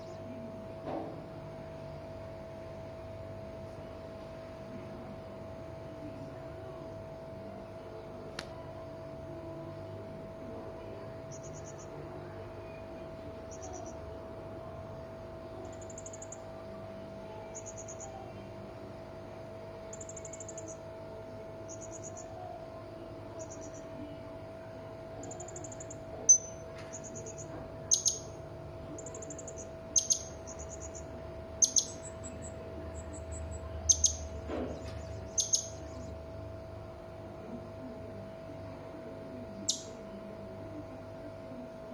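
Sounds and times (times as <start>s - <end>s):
faint steady hum: 0.0s - 41.9s
parrot buzzy trills: 25.2s - 36.1s.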